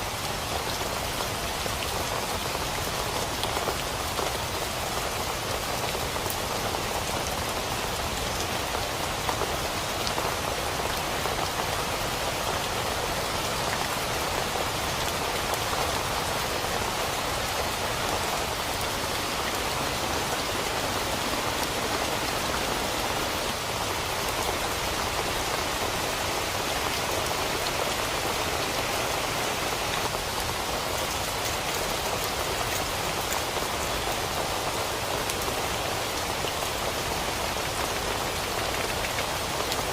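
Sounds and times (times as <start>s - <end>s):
rain hitting a tent: 0.0s - 39.9s.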